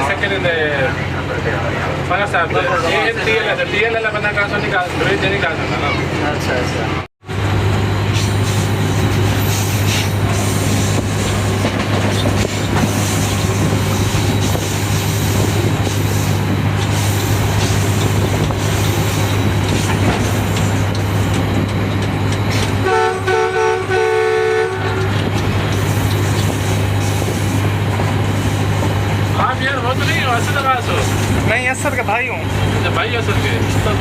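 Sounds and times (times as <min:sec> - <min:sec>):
diesel locomotive running: 0:00.0 - 0:34.0
track rolling noise: 0:00.0 - 0:34.0
locomotive horn blasts: 0:22.8 - 0:25.3.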